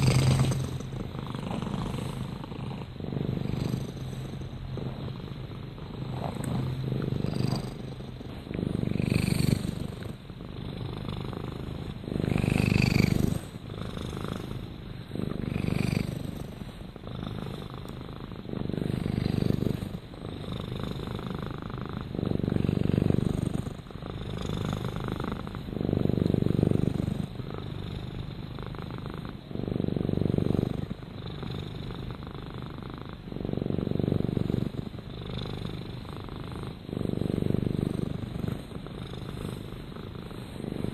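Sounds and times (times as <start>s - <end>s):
cat purring: 0.0s - 40.9s.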